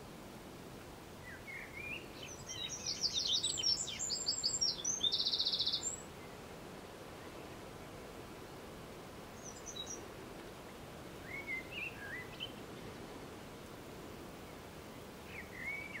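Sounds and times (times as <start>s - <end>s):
low background noise: 0.0s - 16.0s
songbirds calling: 1.2s - 6.5s, 9.3s - 13.4s, 14.1s - 16.0s.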